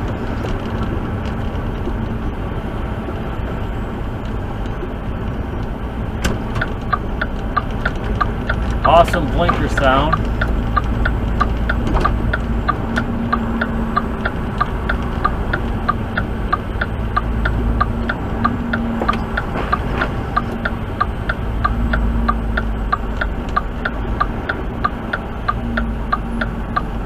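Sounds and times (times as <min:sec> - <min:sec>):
engine and road rumble: 0:00.0 - 0:27.0
turn-signal clicking: 0:05.6 - 0:27.0.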